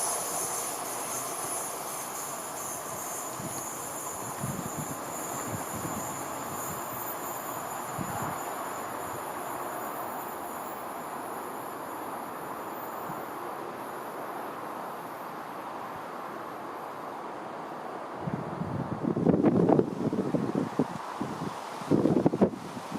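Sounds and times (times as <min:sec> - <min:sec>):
thin high tone: 0:00.0 - 0:13.6
train wheels rushing on rail: 0:00.0 - 0:22.9.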